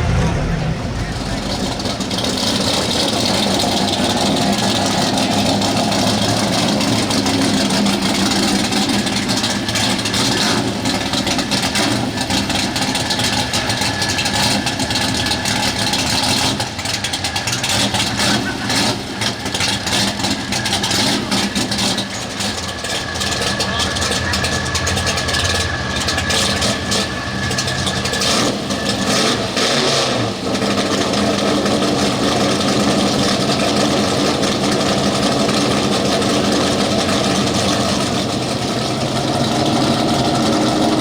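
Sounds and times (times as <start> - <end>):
pickup engine running loudly: 0.0 - 41.0.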